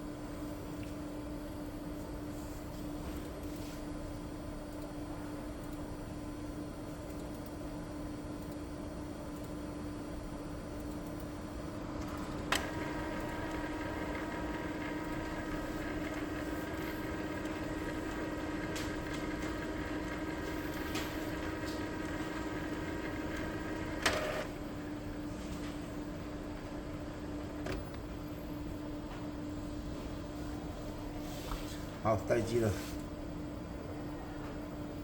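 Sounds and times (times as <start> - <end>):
printer motor hum and whine: 0.0 - 35.0
light printer clicks: 12.0 - 14.2, 23.3 - 24.5
printer clack: 12.0 - 24.5
printer click: 12.0 - 24.5.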